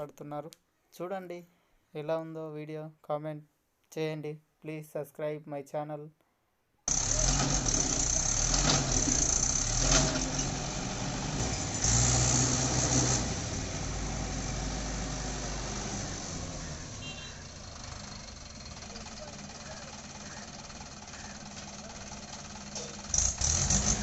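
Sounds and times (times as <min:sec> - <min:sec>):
tractor diesel engine labouring: 0:06.9 - 0:24.0.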